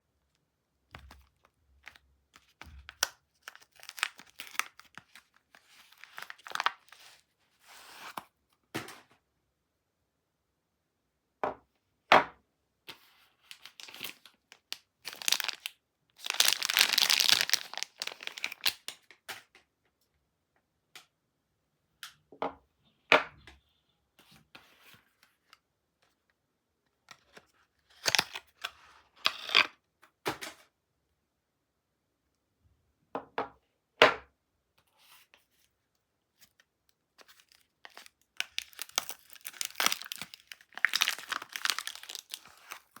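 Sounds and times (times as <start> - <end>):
wrapper crinkling and rustling: 1.1 - 7.2, 13.5 - 18.9, 37.2 - 43.0
wrapper tearing: 2.9 - 7.0, 13.5 - 18.9, 28.0 - 28.5, 37.2 - 43.0.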